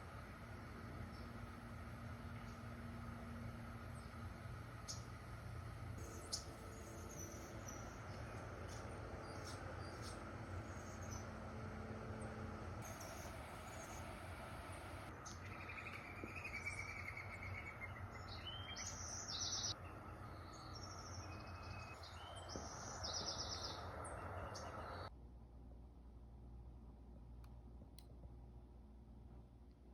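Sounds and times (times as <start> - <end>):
outdoor background hiss: 0.0 - 29.9
small birds chirping: 3.8 - 5.2, 6.0 - 11.4, 12.2 - 25.1.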